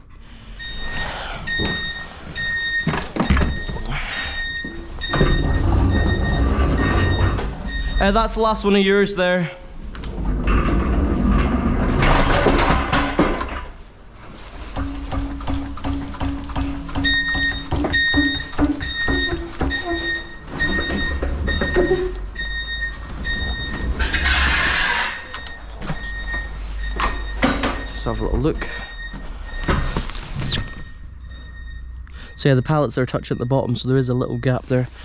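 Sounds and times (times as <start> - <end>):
electronic warning beeps: 0.3 - 8.6, 14.8 - 35.0
bursts of hissing: 0.7 - 2.5.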